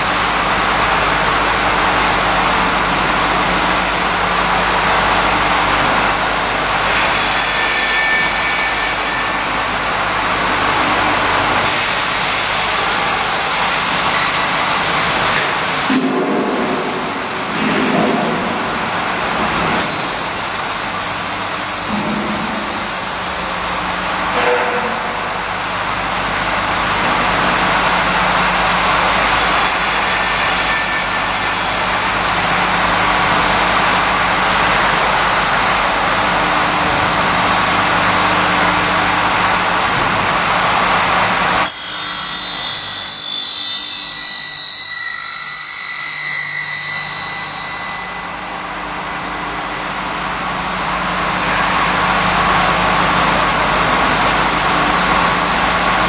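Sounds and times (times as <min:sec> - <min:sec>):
loud cutting noise: 0:01.8 - 0:56.0
milling machine motor hum: 0:16.6 - 0:41.5
high whining tones: 0:41.6 - 0:49.8.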